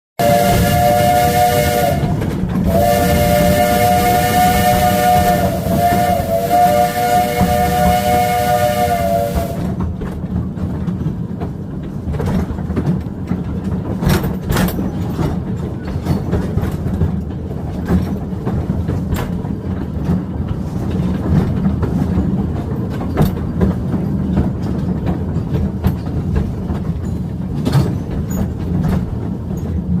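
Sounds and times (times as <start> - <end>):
steam locomotive chime whistle: 0.2 - 9.8
train rumbling along track: 0.2 - 30.0
wheels clacking and rattling: 9.8 - 30.0.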